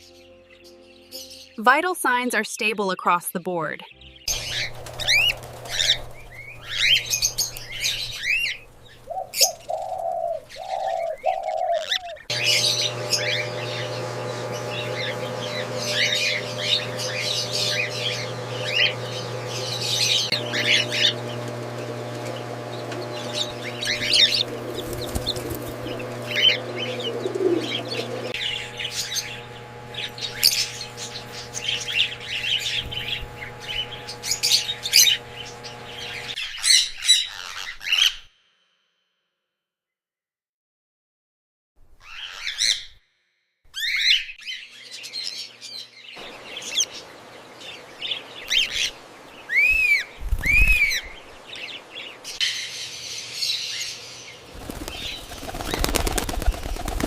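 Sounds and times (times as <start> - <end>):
cockatiels chirping: 4.3 - 38.3, 42.0 - 43.0
low coo-like calls: 9.0 - 12.3, 25.8 - 28.4
steady low hum: 12.3 - 36.4.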